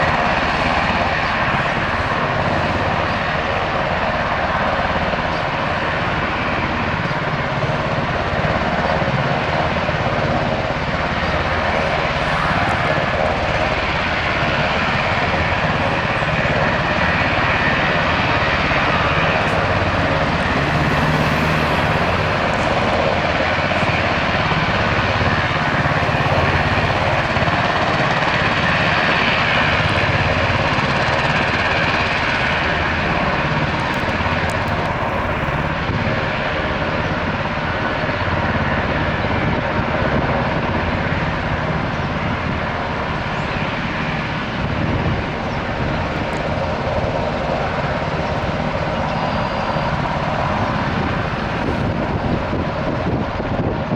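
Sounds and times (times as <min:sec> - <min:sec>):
helicopter engine and rotor: 0:00.0 - 0:53.9.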